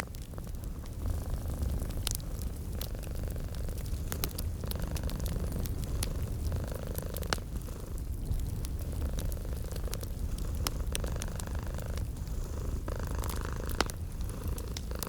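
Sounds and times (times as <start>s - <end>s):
wood fire crackling and popping: 0.0s - 15.0s
cat purring: 0.2s - 15.0s.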